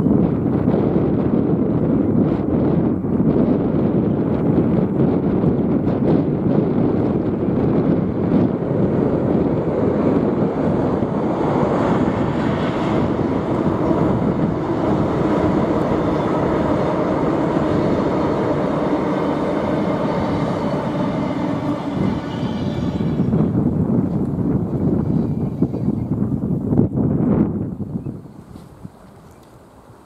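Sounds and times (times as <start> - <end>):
train wheels rumbling on rails: 0.0 - 28.8
wind on microphone: 0.0 - 30.0.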